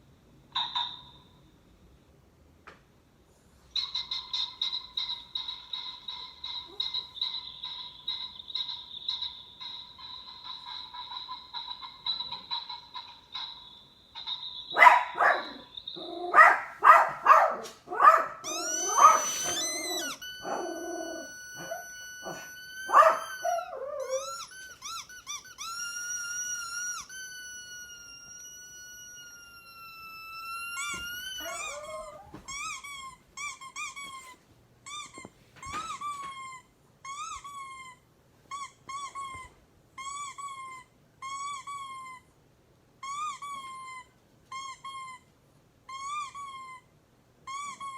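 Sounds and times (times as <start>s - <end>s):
dog whining: 6.5s - 7.4s, 14.7s - 42.4s, 43.0s - 45.3s, 45.9s - 47.9s
short squeaks: 14.2s - 37.8s
dog yelping and barking: 14.7s - 25.8s, 30.8s - 32.8s.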